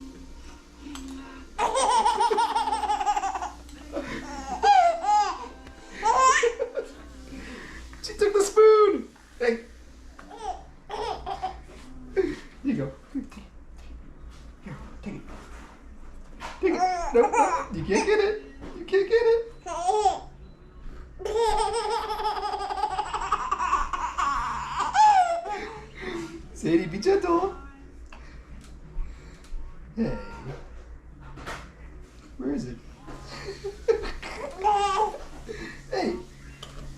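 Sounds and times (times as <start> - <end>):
baby laughing: 1.6 - 6.9, 10.3 - 11.6, 16.7 - 18.2, 19.6 - 20.3, 21.2 - 25.7, 34.0 - 35.3.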